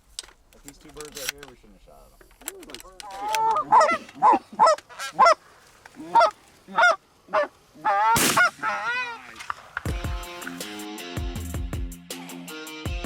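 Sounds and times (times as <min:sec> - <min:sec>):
goose honking: 0:03.1 - 0:05.4, 0:06.0 - 0:09.5
background music with a beat: 0:09.9 - 0:13.0.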